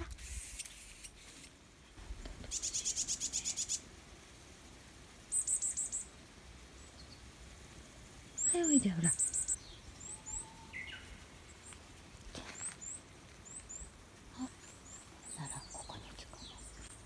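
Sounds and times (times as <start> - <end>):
bird chirping: 2.3 - 3.8, 5.3 - 6.2, 6.8 - 7.3, 8.2 - 11.8, 12.4 - 17.0.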